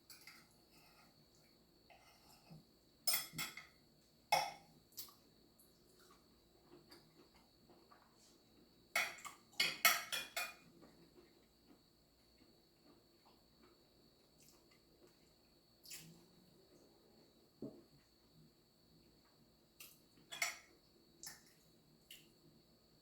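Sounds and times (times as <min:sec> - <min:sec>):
utensil clinking on a dish: 0:03.0 - 0:04.7, 0:08.9 - 0:10.7.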